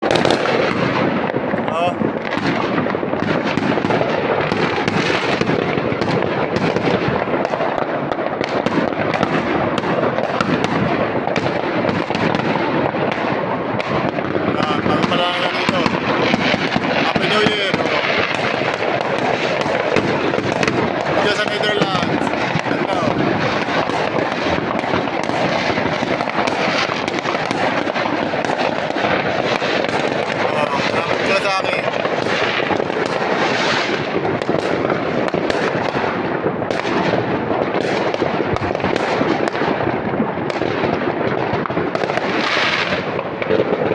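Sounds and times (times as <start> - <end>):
fireworks and firecrackers banging: 0.0 - 43.9.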